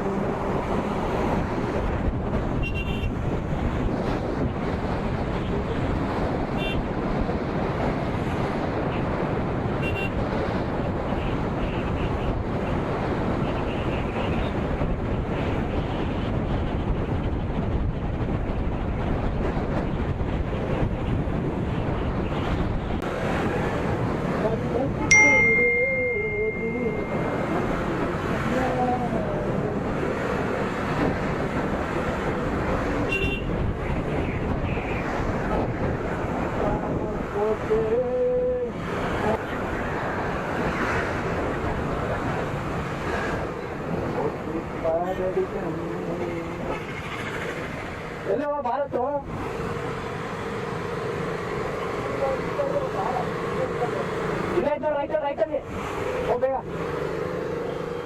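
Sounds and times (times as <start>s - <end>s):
motorcycle engine and road noise: 0.0s - 58.0s
wind rushing on microphone: 0.0s - 58.0s
faint high beeps: 25.1s - 27.6s
clear ringing tone: 25.1s - 27.7s.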